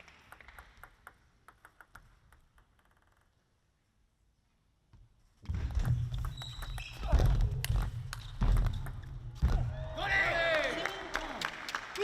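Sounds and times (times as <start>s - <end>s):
table tennis ball ticks: 0.2s - 3.3s.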